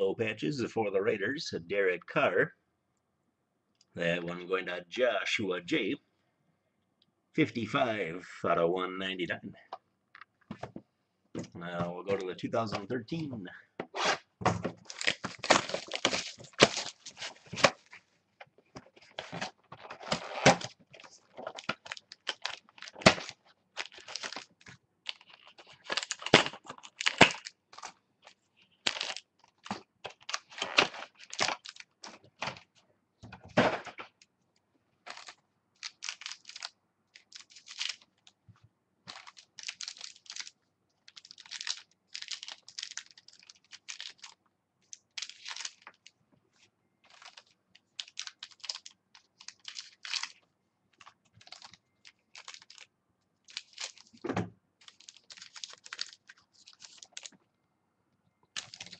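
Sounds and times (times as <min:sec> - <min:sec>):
packaging tearing: 0:14.8 - 0:17.8, 0:19.2 - 0:27.9, 0:28.8 - 0:32.0, 0:35.1 - 0:38.1, 0:39.1 - 0:40.5, 0:41.1 - 0:44.4, 0:45.0 - 0:46.0, 0:47.1 - 0:50.4, 0:51.0 - 0:52.8, 0:53.5 - 0:54.2, 0:54.8 - 0:57.3, 0:58.6 - 0:58.9
packaging clicks and crinkles: 0:14.8 - 0:18.0, 0:19.0 - 0:32.7, 0:35.1 - 0:38.4, 0:39.1 - 0:46.2, 0:47.0 - 0:54.2, 0:54.8 - 0:57.4, 0:58.5 - 0:58.9.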